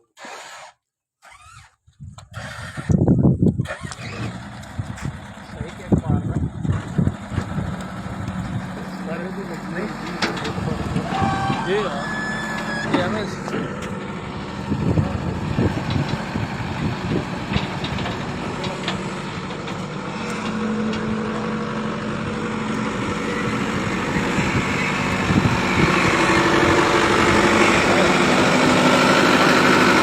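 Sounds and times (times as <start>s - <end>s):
large engine running: 2.3s - 30.0s
people's voices: 8.5s - 13.9s, 26.6s - 28.5s.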